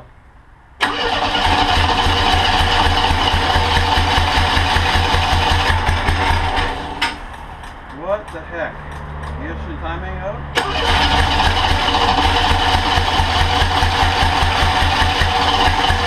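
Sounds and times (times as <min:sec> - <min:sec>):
trike engine running: 0:00.8 - 0:07.8, 0:10.6 - 0:16.0.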